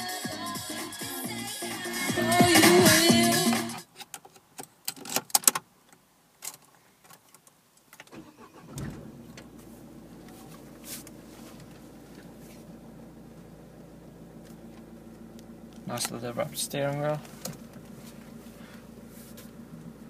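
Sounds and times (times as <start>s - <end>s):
car engine cranking: 8.0s - 20.0s
car engine idling: 8.1s - 20.0s.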